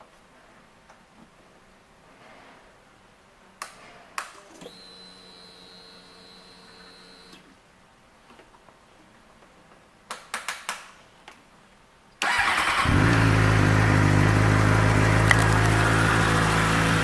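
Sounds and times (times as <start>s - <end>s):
ignition clicks: 12.2s - 16.7s
fuel pump whirring: 12.2s - 17.0s.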